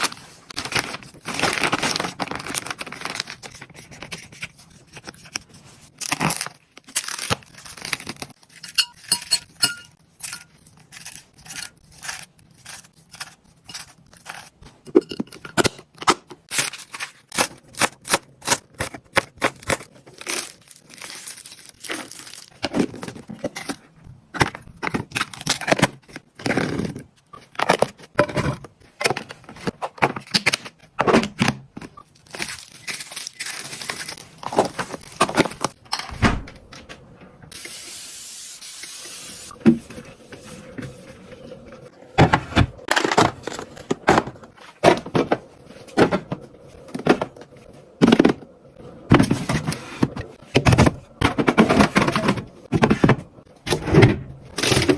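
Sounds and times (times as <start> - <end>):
plastic packaging crinkling: 0.0 - 8.6, 16.5 - 23.4, 32.0 - 35.8.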